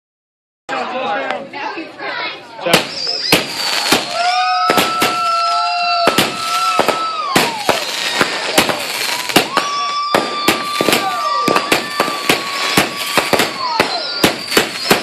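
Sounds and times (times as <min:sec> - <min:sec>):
fireworks bangs and crackles: 0:02.6 - 0:15.0
whistling shell: 0:02.7 - 0:05.2, 0:09.1 - 0:15.0.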